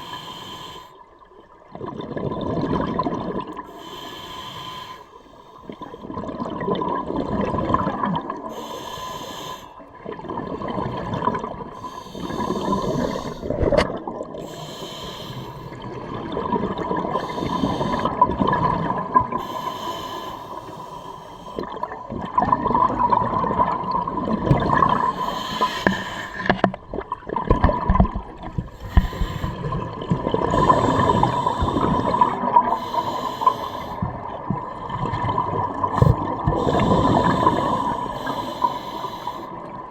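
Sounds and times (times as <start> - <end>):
hissing regulator inhale: 0.0 - 1.0, 3.7 - 5.8, 8.5 - 9.8, 11.8 - 13.8, 14.4 - 16.0, 17.0 - 18.2, 19.3 - 22.0, 24.8 - 26.8, 28.6 - 34.1, 36.0 - 39.7
bubbling exhale underwater: 21.5 - 38.4.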